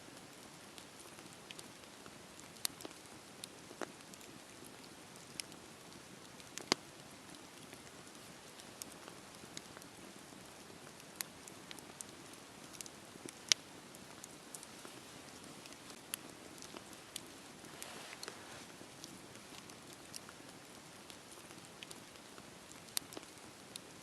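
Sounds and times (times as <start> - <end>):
campfire wood crackling and popping: 0.1 - 24.0
fire hissing: 16.6 - 18.8.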